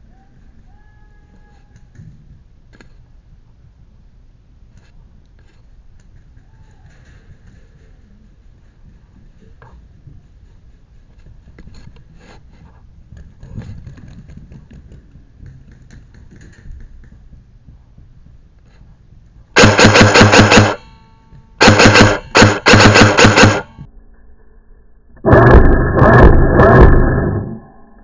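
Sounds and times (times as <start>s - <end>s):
airsoft rifle full-auto bursts: 19.6s - 20.9s, 21.6s - 23.8s.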